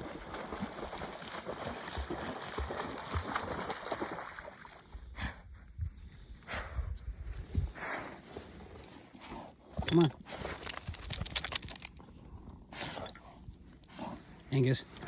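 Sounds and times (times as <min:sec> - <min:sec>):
dog splashing through water: 0:00.0 - 0:05.0.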